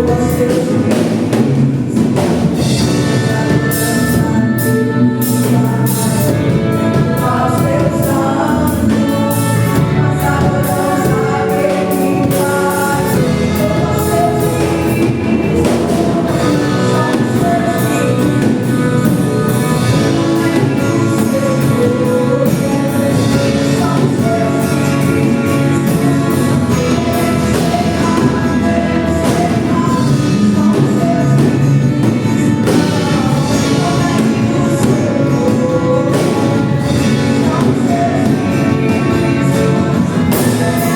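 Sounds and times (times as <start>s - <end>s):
band playing: 0.0s - 40.9s
group singing gospel song: 0.0s - 40.9s
steady drum beat: 0.0s - 40.9s.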